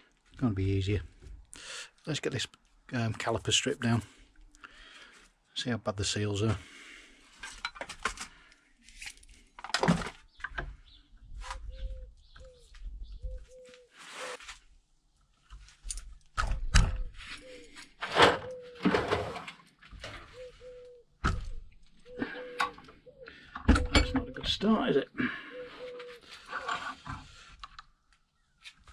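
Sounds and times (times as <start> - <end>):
metal tools knocking and scraping: 23.6 - 24.6.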